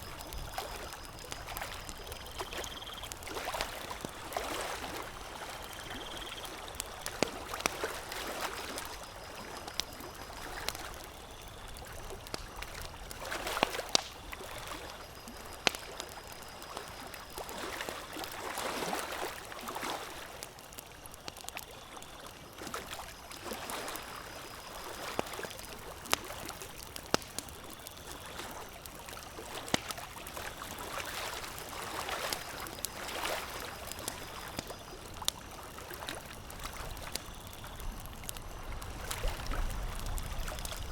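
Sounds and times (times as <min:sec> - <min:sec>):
campfire crackling and popping: 0:00.0 - 0:40.9
lake water lapping: 0:00.1 - 0:11.0, 0:28.3 - 0:37.2.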